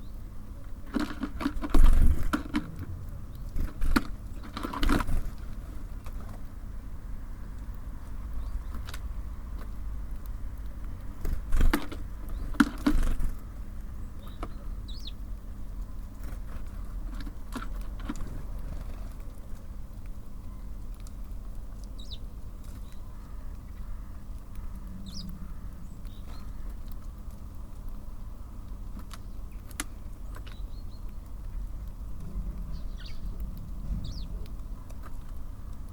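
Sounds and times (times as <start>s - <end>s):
traffic rumble: 0.0s - 35.9s
high bird calls: 14.1s - 15.2s, 22.0s - 26.8s, 32.4s - 35.0s.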